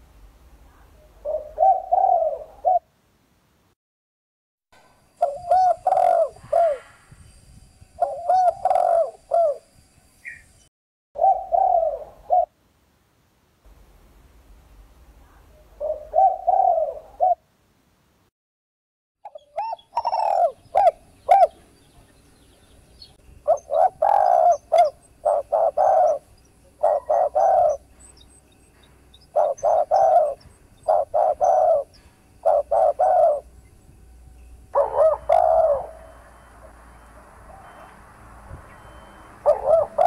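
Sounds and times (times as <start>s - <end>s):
dove cooing: 0.8s - 2.9s, 5.2s - 6.9s, 8.0s - 9.7s, 11.2s - 12.6s, 15.3s - 17.5s, 19.3s - 21.6s, 23.4s - 27.9s, 29.2s - 33.6s, 34.7s - 38.0s, 38.7s - 40.0s.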